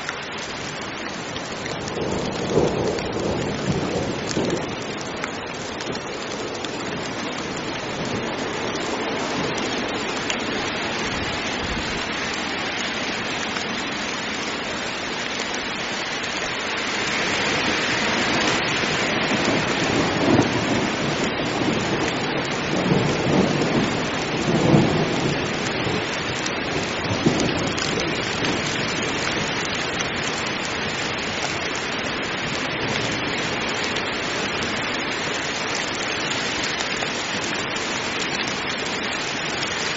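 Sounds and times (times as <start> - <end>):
heavy rain falling: 0.0 - 39.9
thunder rumbling: 1.6 - 10.0, 17.6 - 29.6.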